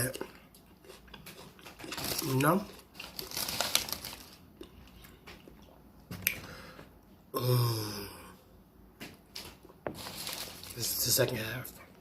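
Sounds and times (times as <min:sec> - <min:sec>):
short low vocal sound: 0:07.3 - 0:08.4.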